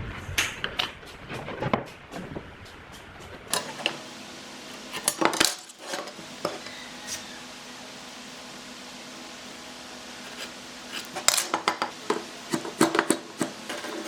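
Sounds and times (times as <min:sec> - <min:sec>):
hard objects clinking and knocking: 0:03.5 - 0:04.1, 0:04.8 - 0:07.2, 0:10.3 - 0:14.0.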